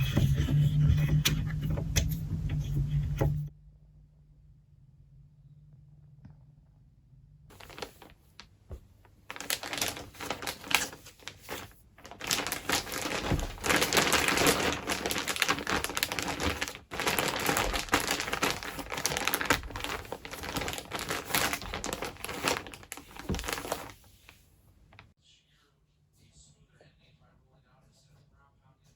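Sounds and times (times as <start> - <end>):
packing material crinkling: 7.5 - 25.0.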